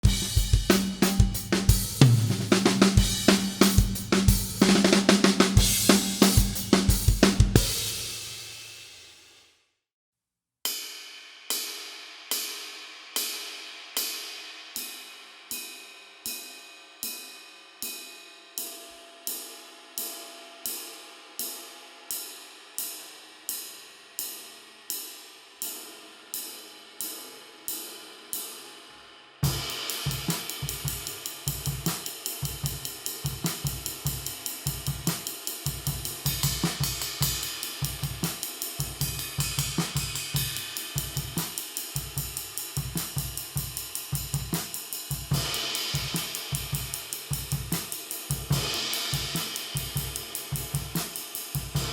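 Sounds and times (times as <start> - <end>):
drum kit groove: 0.0 - 9.3, 29.4 - 51.9.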